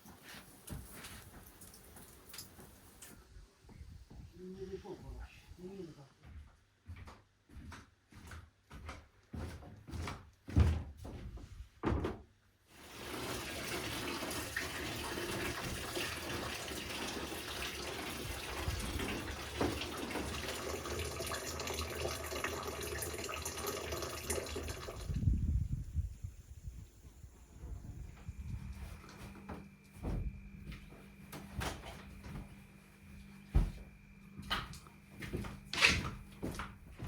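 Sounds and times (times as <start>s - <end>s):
liquid running: 12.7s - 25.3s.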